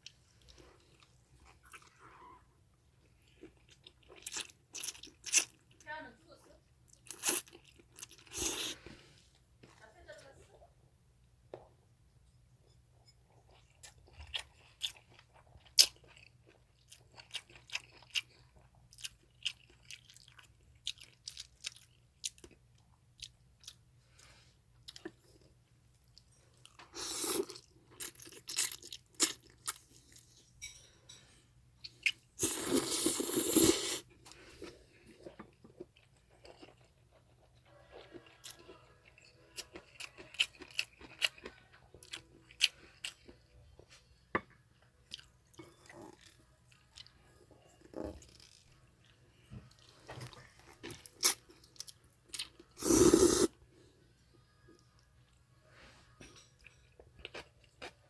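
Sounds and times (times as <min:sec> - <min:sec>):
wet chewing sounds: 0:13.3 - 0:30.3, 0:31.8 - 0:43.4.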